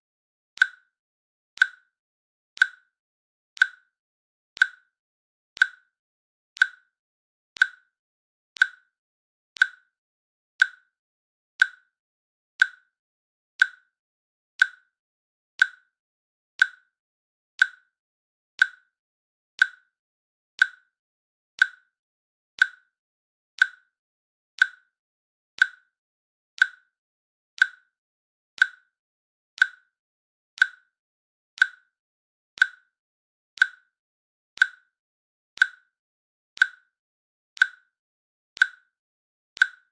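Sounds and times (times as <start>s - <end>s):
timer clicking: 0.6s - 0.9s, 1.6s - 1.9s, 2.6s - 3.0s, 3.6s - 4.0s, 4.6s - 5.0s, 5.6s - 6.0s, 6.6s - 7.0s, 7.6s - 8.0s, 8.6s - 9.0s, 9.6s - 10.0s, 10.6s - 11.0s, 11.6s - 12.0s, 12.6s - 13.0s, 13.6s - 14.0s, 14.6s - 15.0s, 15.6s - 16.0s, 16.6s - 17.0s, 17.6s - 18.0s, 18.6s - 19.0s, 19.6s - 20.0s, 20.6s - 21.0s, 21.6s - 22.0s, 22.6s - 23.0s, 23.6s - 24.0s, 24.6s - 25.0s, 25.6s - 26.0s, 26.6s - 27.0s, 27.6s - 28.0s, 28.6s - 29.0s, 29.6s - 30.0s, 30.6s - 31.0s, 31.6s - 32.0s, 32.6s - 33.0s, 33.6s - 34.0s, 34.6s - 35.0s, 35.6s - 36.0s, 36.6s - 37.0s, 37.6s - 38.0s, 38.6s - 39.0s, 39.6s - 39.9s.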